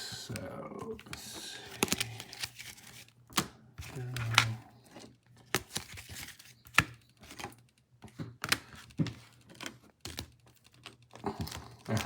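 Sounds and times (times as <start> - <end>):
cards sliding and rustling: 0.3 - 4.6, 5.5 - 7.5.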